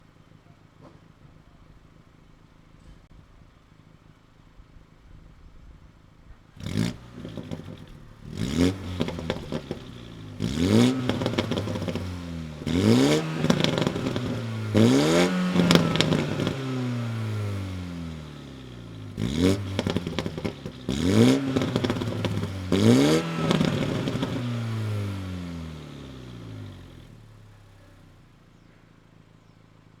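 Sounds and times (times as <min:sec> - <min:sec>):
car engine idling and revving: 0:06.1 - 0:30.0
exhaust pops and crackles: 0:06.6 - 0:27.1.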